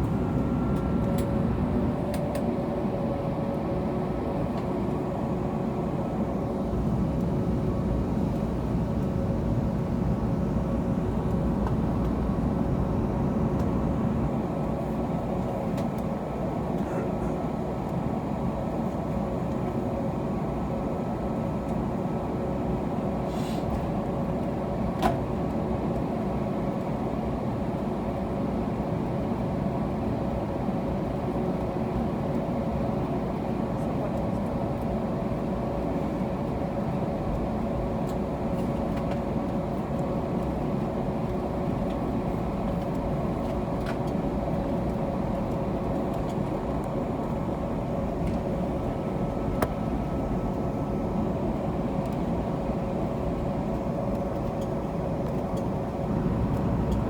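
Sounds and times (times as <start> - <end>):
aircraft cabin rumble and hiss: 0.0 - 57.0
steady engine hums: 30.2 - 57.0.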